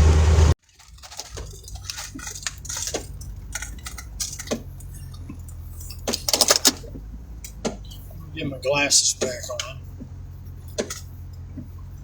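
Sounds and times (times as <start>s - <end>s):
steady low hum: 0.0s - 12.0s
small objects clicking and rattling: 0.6s - 7.6s.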